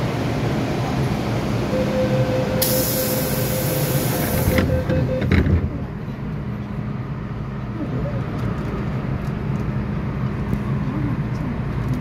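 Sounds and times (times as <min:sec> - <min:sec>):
train running whine: 0:00.0 - 0:11.2
high air hiss: 0:02.6 - 0:04.5.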